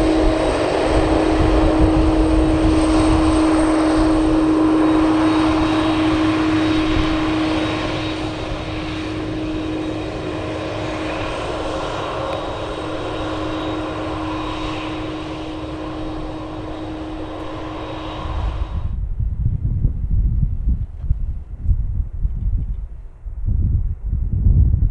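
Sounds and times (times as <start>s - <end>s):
jet engines at takeoff: 0.0s - 24.7s
strong steady hum: 0.0s - 24.9s.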